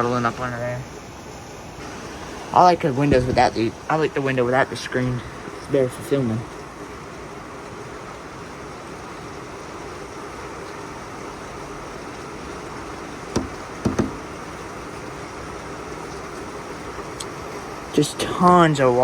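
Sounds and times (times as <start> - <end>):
heavy rain falling: 0.0 - 19.0
brief knocks: 13.4 - 14.3.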